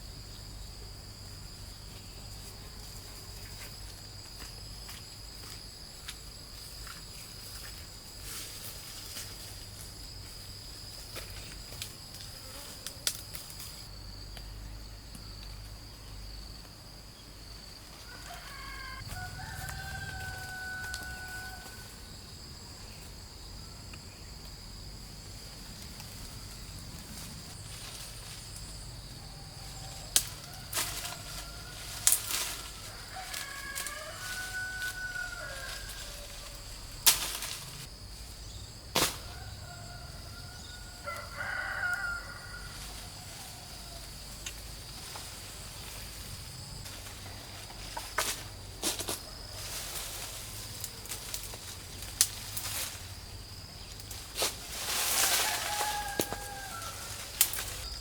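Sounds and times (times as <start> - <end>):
high insect drone: 0.0 - 58.0
rooster crowing: 18.0 - 22.2, 29.2 - 37.0, 39.2 - 44.3, 54.9 - 57.9.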